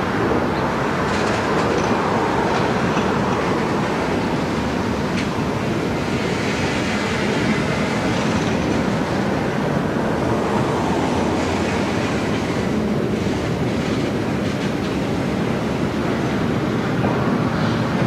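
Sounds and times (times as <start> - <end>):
train wheels rolling on rails: 0.0 - 18.0.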